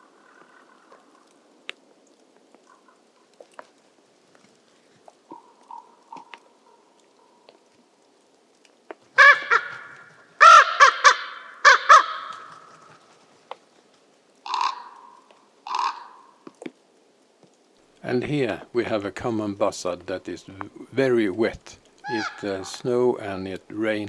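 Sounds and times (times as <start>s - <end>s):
jay screeching calls: 9.2s - 12.7s, 14.5s - 16.3s, 22.0s - 22.8s.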